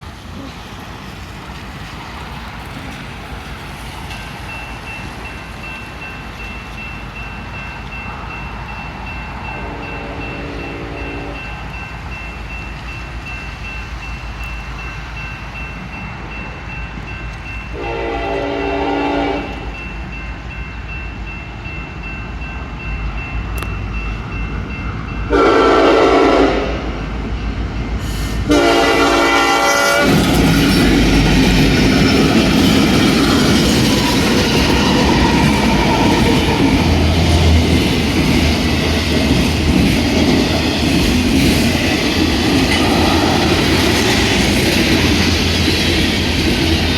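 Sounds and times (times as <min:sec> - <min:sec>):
locomotive engine rumbling: 0:00.0 - 0:46.9
train wheels clattering on rails: 0:00.0 - 0:46.9
train horn blasts: 0:09.6 - 0:11.4, 0:17.7 - 0:19.7, 0:25.3 - 0:27.0, 0:28.4 - 0:30.4.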